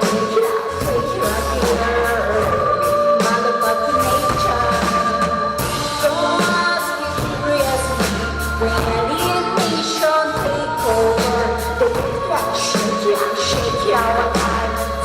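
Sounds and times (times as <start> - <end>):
live band playing: 0.0 - 15.0
person singing: 0.0 - 15.0
heavy pulsing bass line: 0.8 - 6.4.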